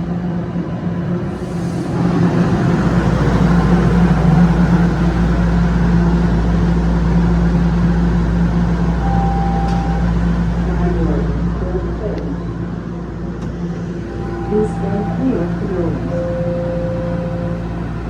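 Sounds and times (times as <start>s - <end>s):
subway train hum: 0.0s - 18.0s
deep low rumble: 1.0s - 18.0s
short high tone: 14.0s - 18.0s.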